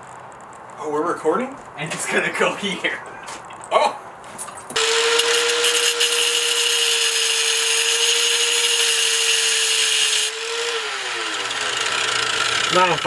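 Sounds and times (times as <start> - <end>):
angle grinder cutting metal pipe: 4.8 - 13.0.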